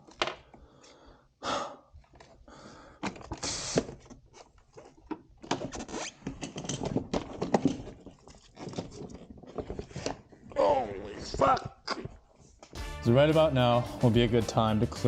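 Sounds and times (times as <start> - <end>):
tools clicking and knocking: 4.0 - 10.5.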